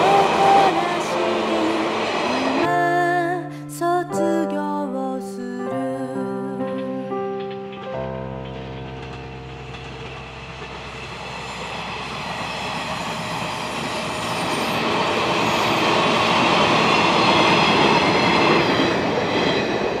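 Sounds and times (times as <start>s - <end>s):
electric train passing: 0.0s - 3.3s, 6.6s - 20.0s.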